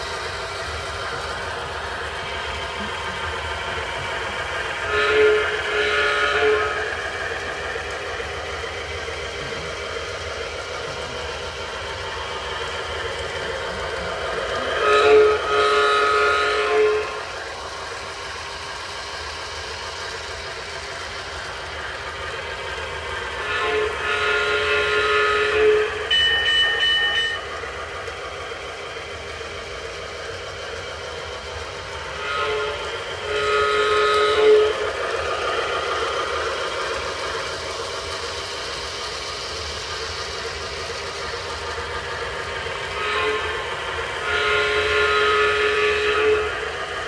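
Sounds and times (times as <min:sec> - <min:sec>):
locomotive motor hum: 0:00.0 - 0:47.0
model train running on track: 0:00.0 - 0:47.0
wheel and rail rumble: 0:00.0 - 0:47.0
toy train electronic horn: 0:00.1 - 0:19.2, 0:22.8 - 0:28.2, 0:29.0 - 0:38.6, 0:40.4 - 0:47.0
diesel horn blasts: 0:02.8 - 0:07.6, 0:13.2 - 0:17.4, 0:23.4 - 0:27.5, 0:32.2 - 0:34.9, 0:42.8 - 0:46.8.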